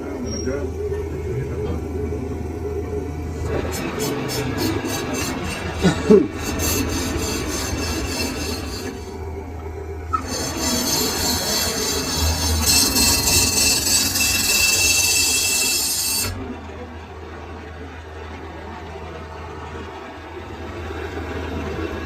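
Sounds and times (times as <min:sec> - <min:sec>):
low machine hum: 0:00.0 - 0:22.0
lathe cutting steel: 0:03.2 - 0:16.7.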